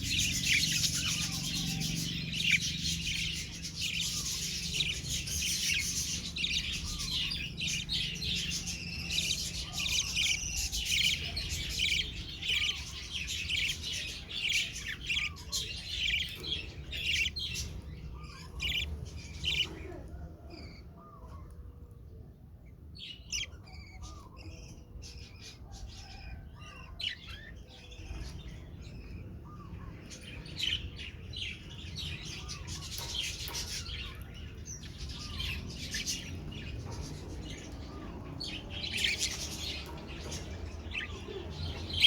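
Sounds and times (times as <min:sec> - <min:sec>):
budgerigars chattering: 0:00.0 - 0:19.9.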